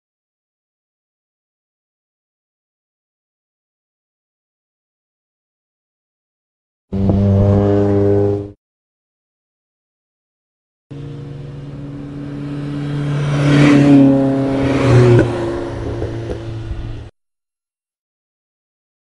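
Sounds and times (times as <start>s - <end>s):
race car engine driving by: 6.9s - 8.6s, 10.9s - 17.1s.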